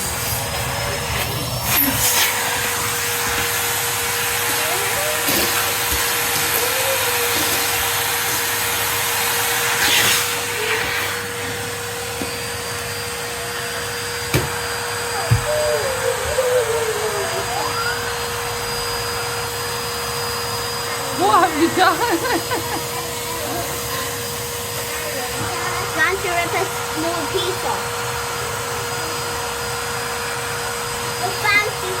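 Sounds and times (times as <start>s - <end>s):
vacuum cleaner running: 0.0s - 32.0s.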